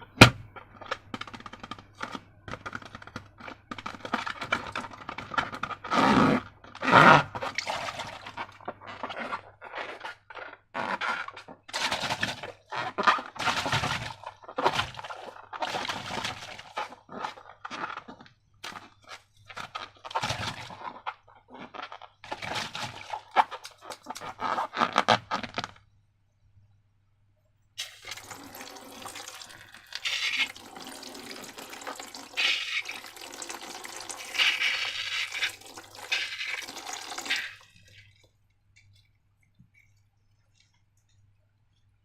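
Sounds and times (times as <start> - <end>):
slime squelching by hand: 1.8 - 25.3, 27.8 - 41.4
liquid pouring and gushing: 7.0 - 10.1, 11.3 - 18.9, 22.3 - 24.7, 27.8 - 41.1.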